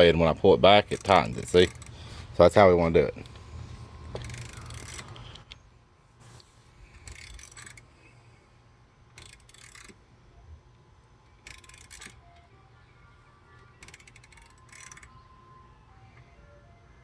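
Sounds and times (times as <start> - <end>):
hand ratchet clicking: 0.0 - 2.2, 4.1 - 5.6, 6.9 - 7.9, 9.1 - 10.0, 11.3 - 12.5, 13.6 - 15.2.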